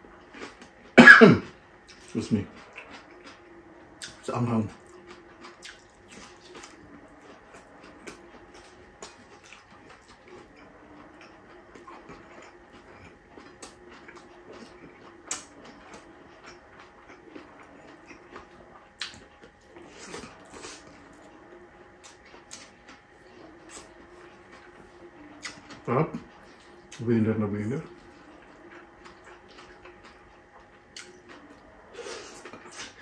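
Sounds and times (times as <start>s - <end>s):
faint wavering low hum: 0.0s - 33.0s
chewing and wet lip smacks: 4.0s - 21.2s, 22.0s - 24.8s, 28.1s - 33.0s.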